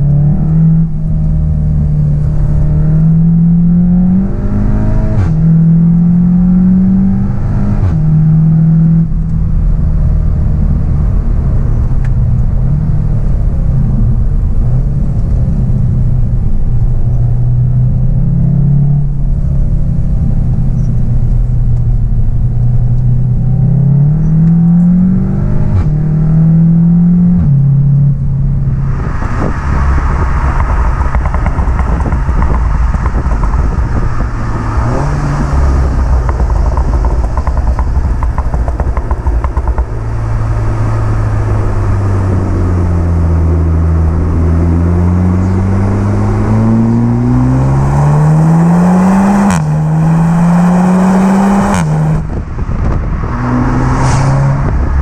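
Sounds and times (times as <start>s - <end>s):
car engine accelerating through upshifts: 0.0s - 15.9s, 17.0s - 55.0s
broad rushing noise: 28.1s - 55.0s.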